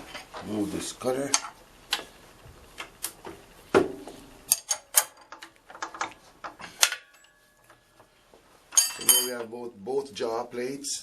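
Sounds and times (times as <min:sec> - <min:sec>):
metal tools clicking and clinking: 0:04.5 - 0:07.8, 0:08.7 - 0:09.5.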